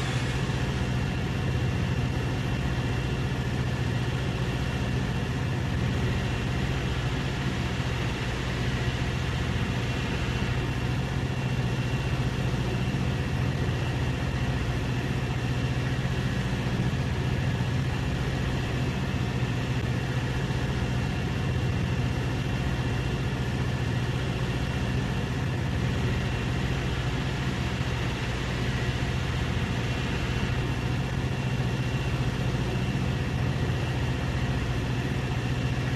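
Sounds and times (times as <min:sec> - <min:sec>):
steady engine drone: 0:00.0 - 0:35.9.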